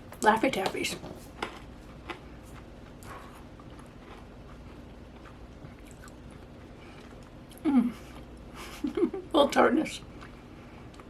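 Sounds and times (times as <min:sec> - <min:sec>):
candy crunching while chewed: 0:01.4 - 0:07.7.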